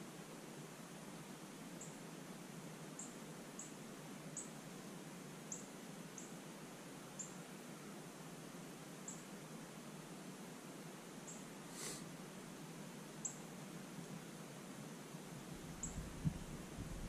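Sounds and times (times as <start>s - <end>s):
quiet background hiss: 0.0s - 17.0s.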